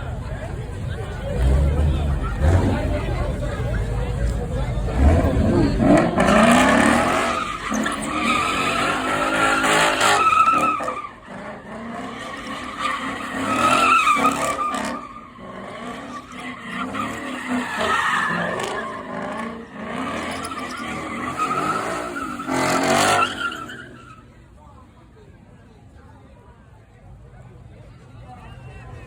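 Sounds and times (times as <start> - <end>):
car engines revving: 0.0 - 24.4
car tires squealing: 1.1 - 24.4.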